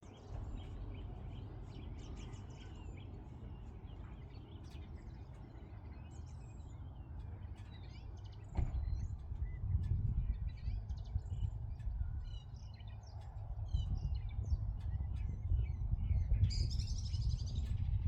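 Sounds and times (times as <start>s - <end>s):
small birds chirping: 0.1s - 18.0s
steady low rumble: 7.2s - 18.0s.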